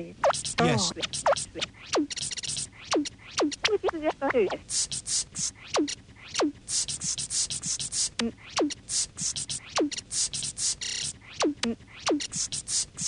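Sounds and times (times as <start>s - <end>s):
short hissing bursts: 4.5s - 13.0s.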